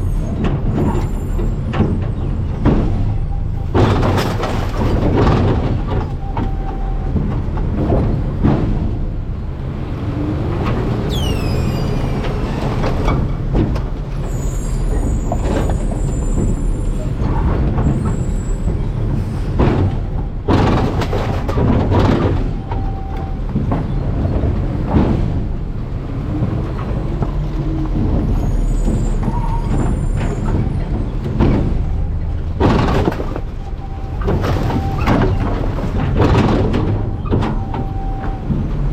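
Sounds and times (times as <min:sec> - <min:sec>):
garbage truck engine rumbling: 0:00.0 - 0:38.9
trash crunching and knocking: 0:00.4 - 0:09.5, 0:12.3 - 0:14.4, 0:15.0 - 0:38.9
short falling squeal: 0:11.1 - 0:12.7
high metal-on-metal squealing: 0:11.1 - 0:12.8, 0:14.2 - 0:17.3.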